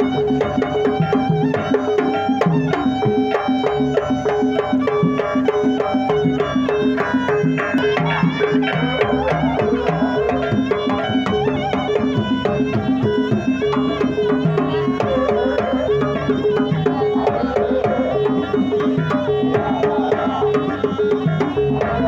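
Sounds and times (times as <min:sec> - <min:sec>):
drums and percussion: 0:00.0 - 0:22.0.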